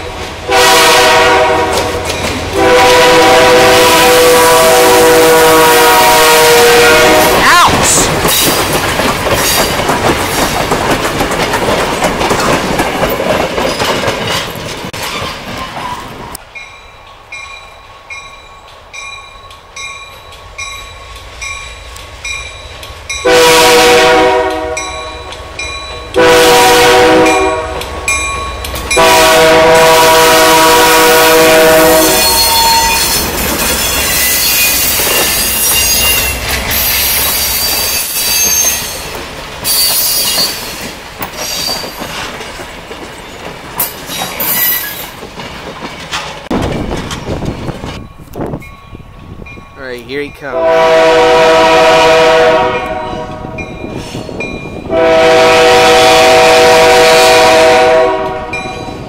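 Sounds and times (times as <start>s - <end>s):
locomotive horn blasts: 0.5s - 7.4s, 23.2s - 25.2s, 26.2s - 27.9s, 28.9s - 33.1s, 50.5s - 53.6s, 54.9s - 58.8s
wheels clacking over rail joints: 1.7s - 3.0s, 8.1s - 16.4s, 32.2s - 48.7s
crossing warning bells ringing: 16.2s - 42.2s, 47.5s - 59.0s
high wheel squeals: 32.0s - 39.1s, 39.7s - 40.8s, 44.1s - 45.0s.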